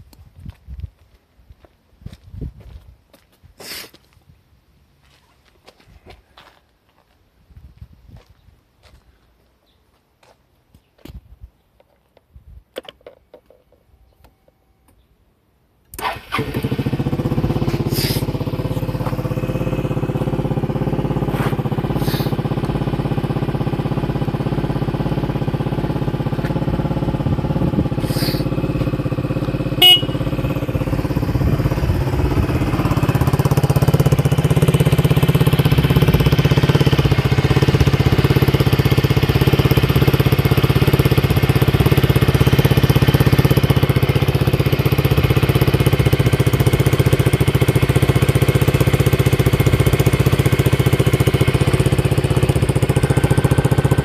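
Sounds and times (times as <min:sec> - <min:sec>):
scooter engine idling: 0:16.0 - 0:54.0.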